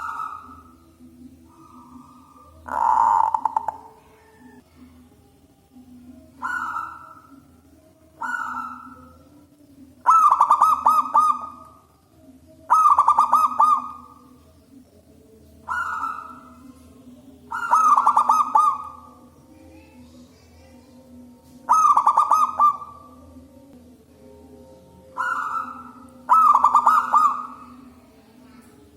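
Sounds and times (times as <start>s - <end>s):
dove cooing: 0.0s - 4.6s, 6.2s - 9.4s, 10.0s - 11.8s, 12.6s - 14.4s, 15.6s - 19.4s, 21.4s - 23.2s, 25.0s - 28.7s
faint low hum: 0.0s - 28.9s.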